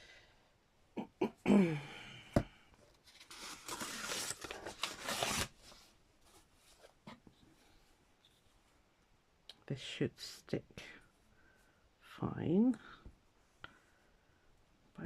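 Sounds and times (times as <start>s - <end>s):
paper crackling and rustling: 3.0s - 7.0s.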